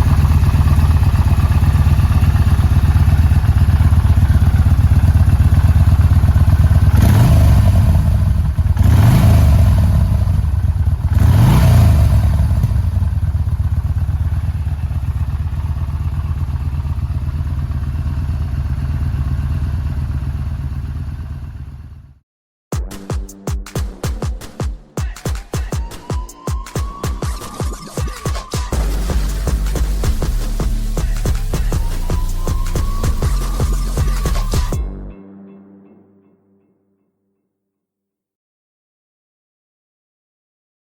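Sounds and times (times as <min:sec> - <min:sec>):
motorcycle engine idling and revving: 0:00.0 - 0:22.2, 0:28.7 - 0:34.8
electronic music: 0:22.8 - 0:36.9.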